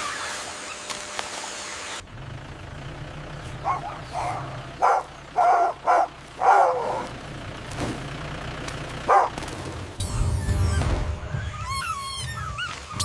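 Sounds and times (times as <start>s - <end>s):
low engine rumble: 1.7s - 13.0s
dog barking: 3.6s - 7.1s, 9.1s - 9.4s.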